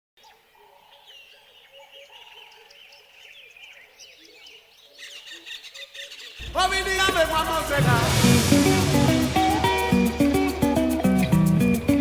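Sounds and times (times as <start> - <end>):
birds chirping and whistling: 0.9 - 7.1.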